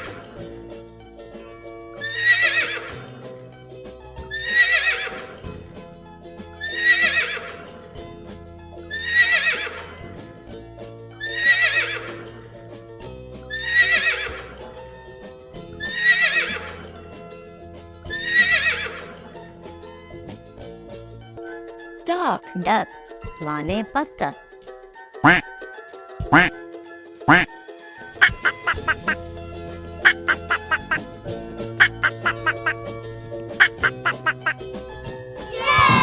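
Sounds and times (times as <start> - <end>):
background music with sustained notes: 0.0 - 36.0
horse whinnying: 2.0 - 3.0, 4.3 - 5.4, 6.6 - 7.6, 8.9 - 10.0, 11.2 - 12.3, 13.5 - 14.5, 15.8 - 16.9, 18.1 - 19.0.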